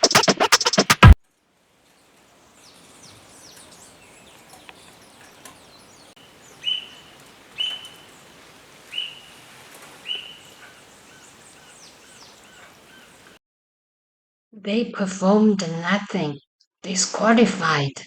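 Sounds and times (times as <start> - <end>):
faint birds chirping: 1.4 - 13.4
bird giving short high calls: 2.3 - 13.4.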